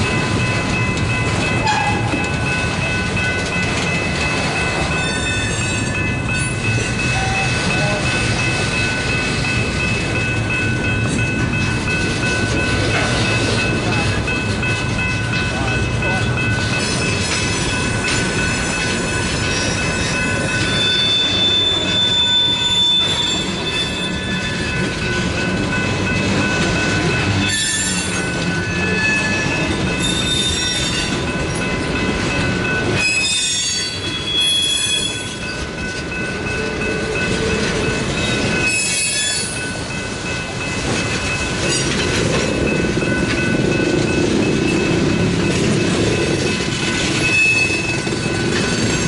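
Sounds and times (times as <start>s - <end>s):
train wheels rumbling on rail: 0.0s - 49.0s
high-pitched wheel squeal: 5.0s - 5.9s, 20.7s - 24.6s, 27.5s - 28.2s, 28.8s - 31.1s, 33.0s - 35.4s, 38.7s - 39.6s.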